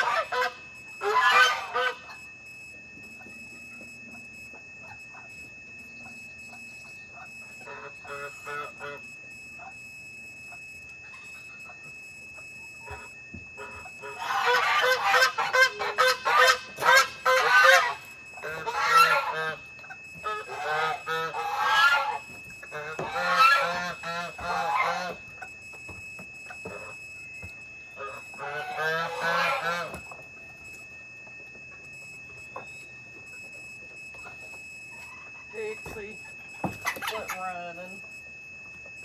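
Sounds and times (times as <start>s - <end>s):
geese honking: 0.0s - 2.3s, 4.8s - 9.7s, 11.0s - 25.6s, 26.6s - 26.9s, 27.9s - 30.3s, 34.2s - 37.9s.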